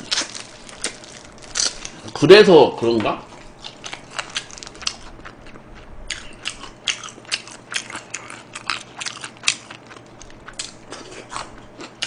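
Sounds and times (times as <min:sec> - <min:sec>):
wet chewing crunches: 0:00.0 - 0:02.1, 0:03.3 - 0:12.0.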